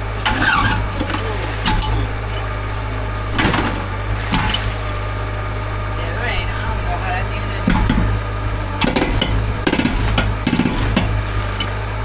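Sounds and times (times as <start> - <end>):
engine idling: 0.0 - 12.0
sharp knocks: 7.6 - 8.2, 8.8 - 11.7.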